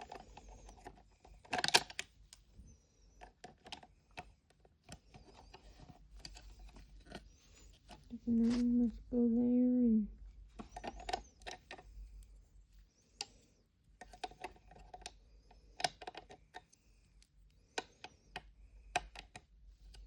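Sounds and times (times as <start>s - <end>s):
plastic toy pieces clicking: 0.0s - 2.1s.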